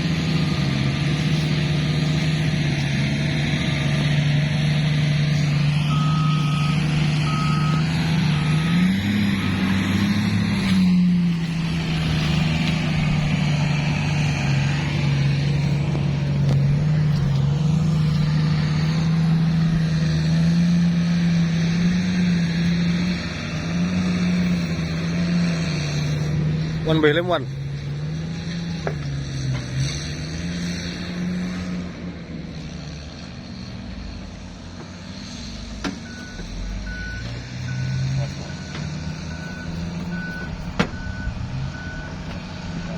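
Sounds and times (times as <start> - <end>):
vehicle engine droning: 0.0 - 42.9
reversing alarm beeping: 5.8 - 10.2, 36.0 - 42.9.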